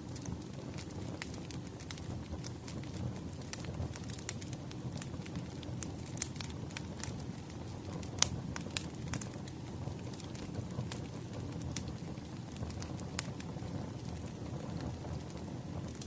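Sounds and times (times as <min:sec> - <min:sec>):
low rumble of fire: 0:00.0 - 0:16.0
wood fire crackling: 0:00.0 - 0:16.0.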